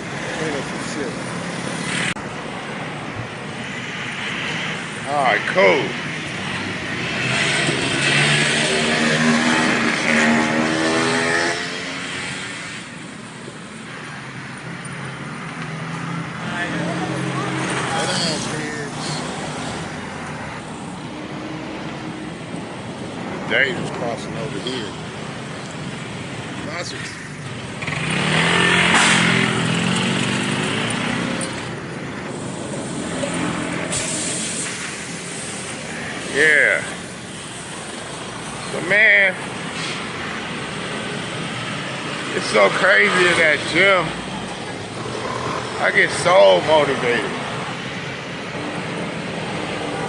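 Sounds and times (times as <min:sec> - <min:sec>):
vehicle passing by: 0:05.7 - 0:12.7, 0:15.3 - 0:22.5, 0:26.8 - 0:37.1, 0:37.7 - 0:47.8
vehicle engine passing by: 0:07.0 - 0:12.4, 0:27.8 - 0:36.9.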